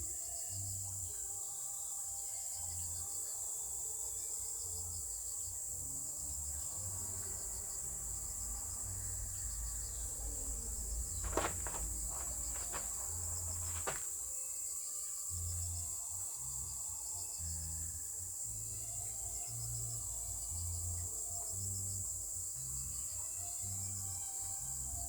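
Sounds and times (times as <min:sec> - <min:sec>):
insects chirring: 0:00.1 - 0:25.0
low rumble: 0:07.0 - 0:13.4
short knocks: 0:10.4 - 0:14.3.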